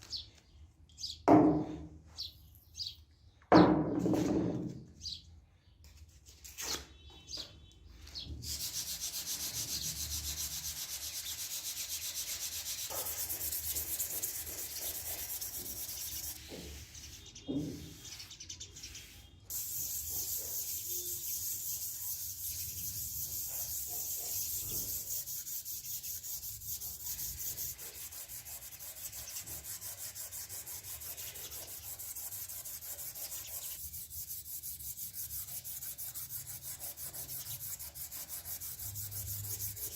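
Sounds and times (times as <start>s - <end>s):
knocks: 1.3s - 1.9s
rasping sanding on knife: 8.4s - 39.9s.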